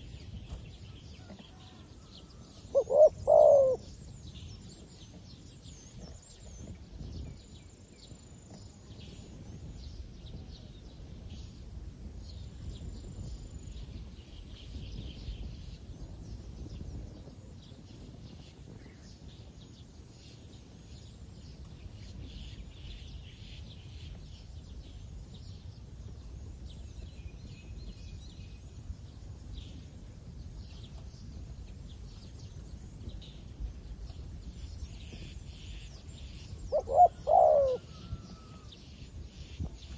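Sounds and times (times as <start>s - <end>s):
low background rumble: 20.8s - 39.9s.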